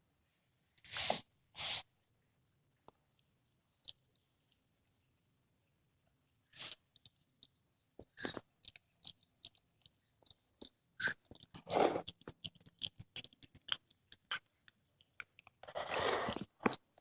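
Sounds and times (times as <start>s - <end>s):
cat chewing and crunching: 6.6s - 17.0s.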